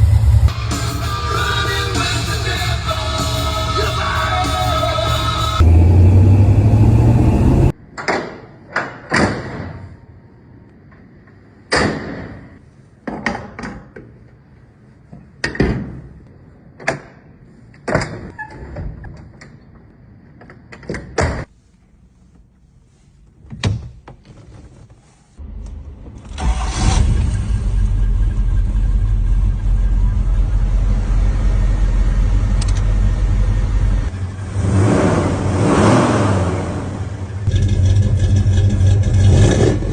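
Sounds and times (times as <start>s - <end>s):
low rumble: 0.0s - 1.3s, 2.4s - 7.8s, 25.4s - 39.9s.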